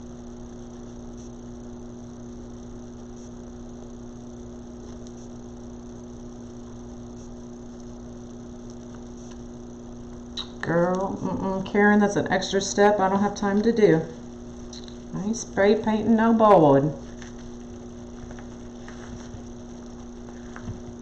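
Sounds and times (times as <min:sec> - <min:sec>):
low electrical hum: 0:00.0 - 0:21.0
person speaking: 0:10.4 - 0:14.2, 0:14.8 - 0:17.1.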